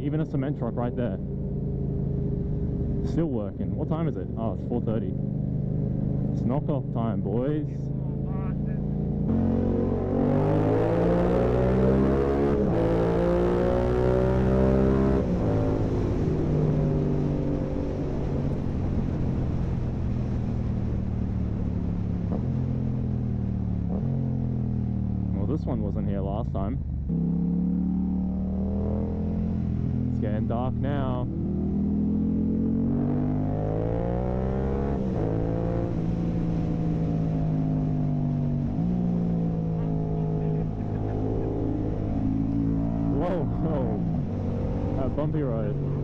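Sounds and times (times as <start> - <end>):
motorcycle engine accelerating: 0.0 - 46.0.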